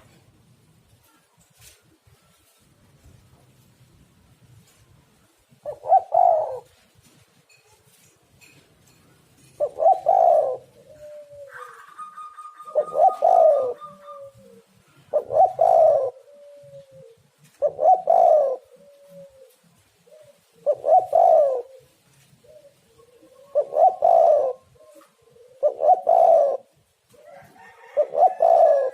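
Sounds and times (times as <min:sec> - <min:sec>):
dove cooing: 0:05.6 - 0:07.0, 0:09.0 - 0:28.9.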